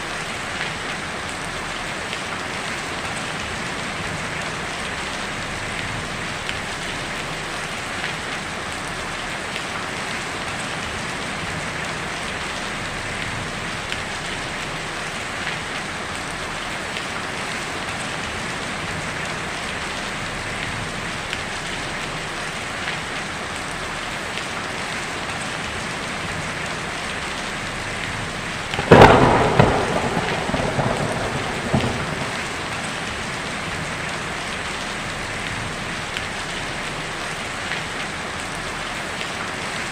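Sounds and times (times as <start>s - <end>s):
heavy rain on a tin roof: 0.0s - 39.9s
thunderclap rumbling: 28.7s - 34.1s.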